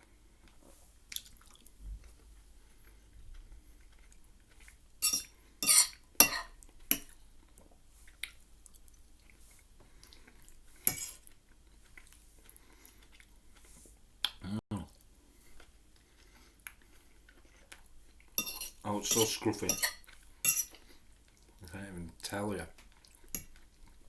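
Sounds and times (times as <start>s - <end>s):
cutlery scraping a dish: 5.0s - 7.1s, 10.8s - 11.3s, 18.4s - 20.8s.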